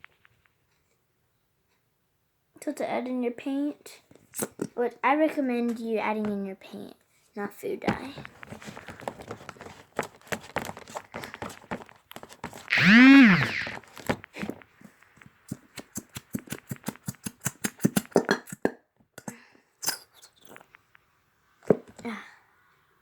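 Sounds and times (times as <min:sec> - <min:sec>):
slime being stirred: 0:08.3 - 0:20.8
loud pitched squeal: 0:12.7 - 0:13.8.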